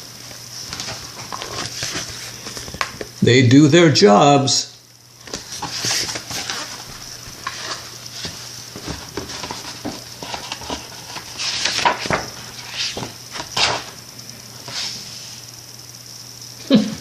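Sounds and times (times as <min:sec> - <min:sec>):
book pages rustling: 0:00.6 - 0:03.0, 0:05.2 - 0:14.0, 0:14.6 - 0:15.2.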